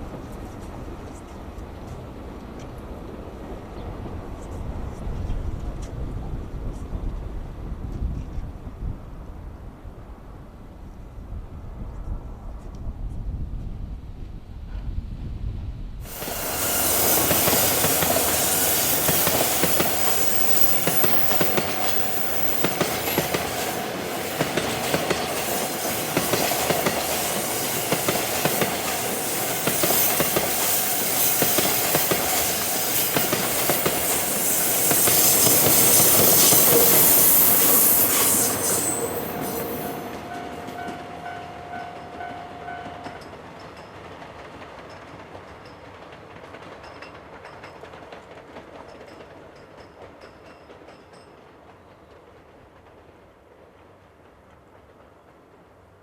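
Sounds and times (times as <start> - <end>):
train wheels clacking on rails: 16.1 - 56.0.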